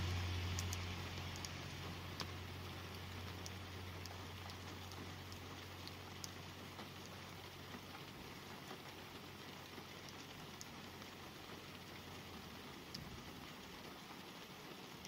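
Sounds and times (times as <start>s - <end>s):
passing vehicle hum: 0.0s - 5.1s
light rain on a car: 0.0s - 15.0s.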